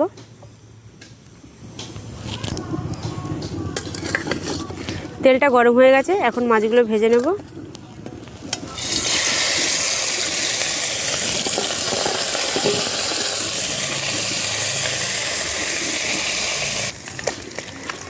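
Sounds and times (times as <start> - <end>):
fish frying in hot oil: 7.5 - 18.0.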